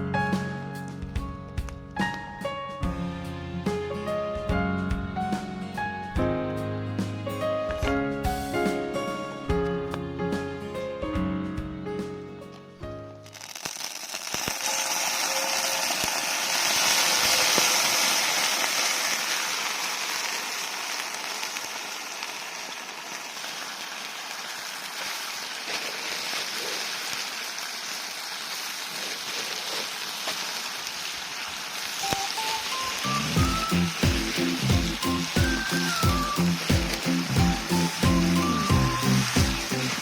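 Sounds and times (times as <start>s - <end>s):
river running over stones: 14.1s - 40.0s.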